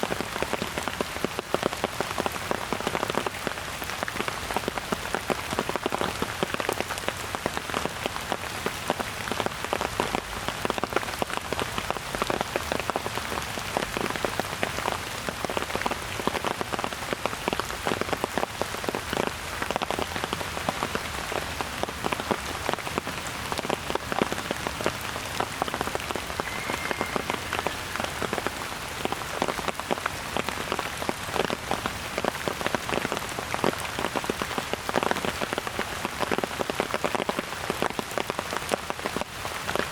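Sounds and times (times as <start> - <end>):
steady rain falling: 0.0 - 39.9
raindrop impacts: 19.1 - 37.4.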